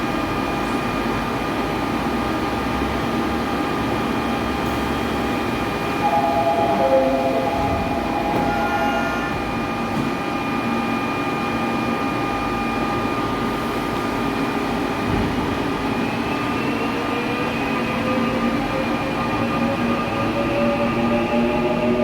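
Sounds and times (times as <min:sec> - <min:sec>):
electric train inverter whining: 0:05.8 - 0:10.9.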